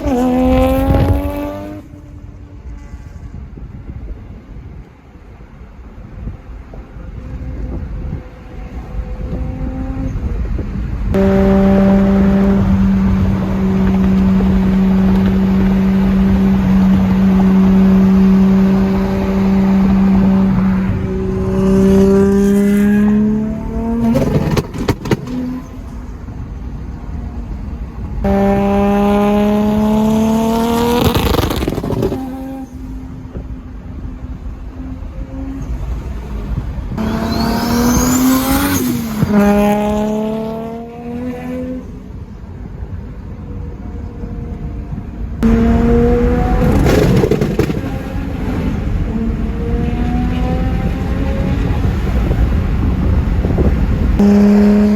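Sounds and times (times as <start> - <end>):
car engine accelerating hard: 0.0 - 3.1, 7.1 - 33.6, 34.3 - 42.0, 44.0 - 54.9
exhaust pops: 12.2 - 22.3, 23.9 - 26.1, 30.8 - 32.7, 45.4 - 49.2.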